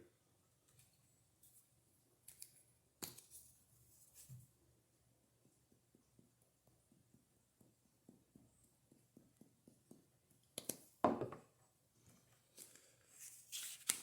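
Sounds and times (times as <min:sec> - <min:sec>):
knock: 0:11.0 - 0:11.4.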